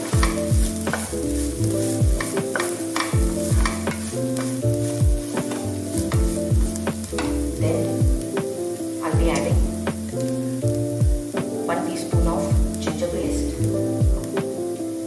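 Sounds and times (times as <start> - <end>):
wooden spatula scraping pan: 0.0 - 7.6
music with a steady beat: 0.0 - 15.0
onions sizzling in a frying pan: 0.0 - 15.0.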